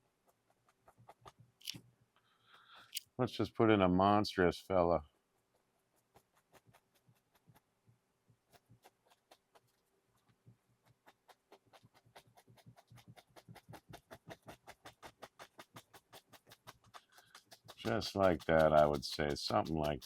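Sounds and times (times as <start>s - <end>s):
brush tapping on canvas: 8.5s - 20.0s.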